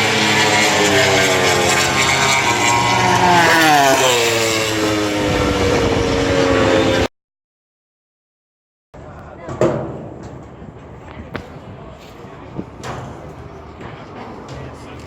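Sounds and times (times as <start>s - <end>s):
race motorcycles passing at high revs: 0.0s - 7.1s.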